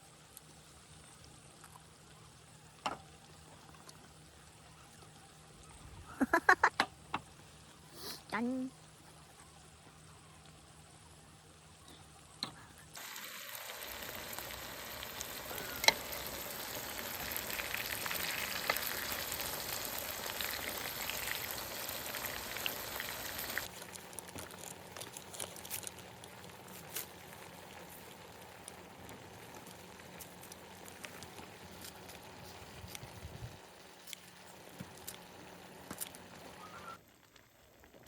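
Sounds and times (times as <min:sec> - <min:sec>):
food sizzling in a pan: 0:13.0 - 0:24.9.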